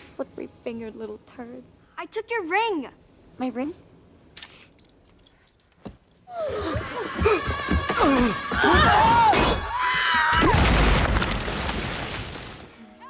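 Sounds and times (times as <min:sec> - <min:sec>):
grenade explosion: 0:10.4 - 0:12.7.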